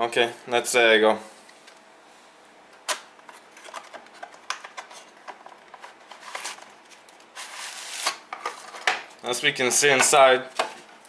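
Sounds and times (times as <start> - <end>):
packaging rustling: 3.3 - 9.2.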